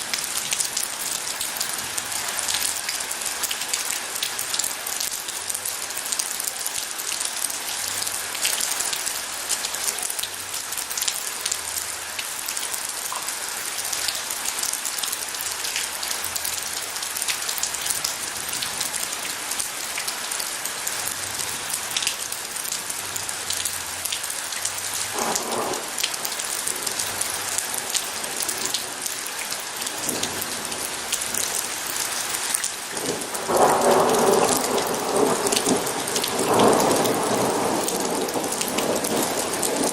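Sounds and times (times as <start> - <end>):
rain falling: 0.0 - 39.9
thunder rumbling: 25.1 - 27.0, 33.0 - 39.9.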